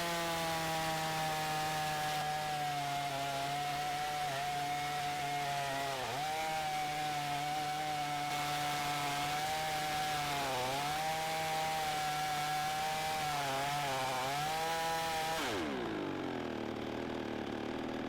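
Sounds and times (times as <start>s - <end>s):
chainsaw at full throttle: 0.0s - 18.0s
chainsaw falling to idle: 15.4s - 18.0s.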